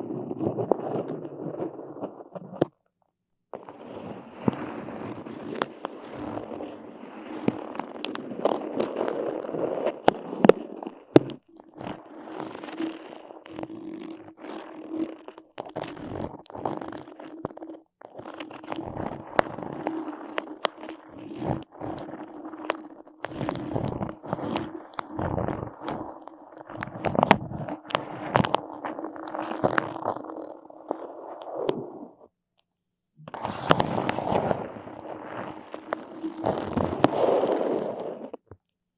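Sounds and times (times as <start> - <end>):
sharp clicks and pops: 4.4 - 31.8, 32.6 - 37.5
sticky surface crackling and peeling: 4.4 - 31.8, 33.3 - 38.4.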